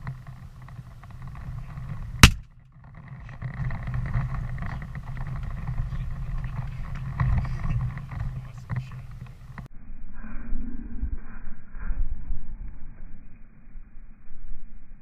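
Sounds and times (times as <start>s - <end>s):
low rumbling noise: 0.0s - 15.0s
shotgun blast: 2.2s - 2.4s.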